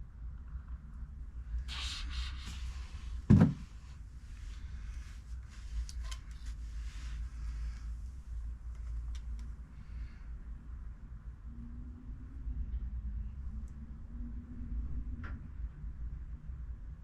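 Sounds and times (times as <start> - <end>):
sharp knock: 3.3 - 3.6.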